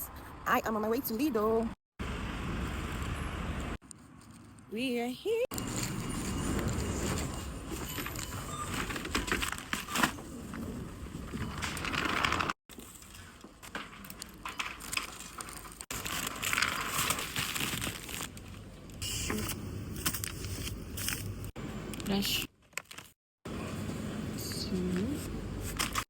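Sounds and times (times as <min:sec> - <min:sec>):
crinkling and rustling: 0:05.5 - 0:23.2.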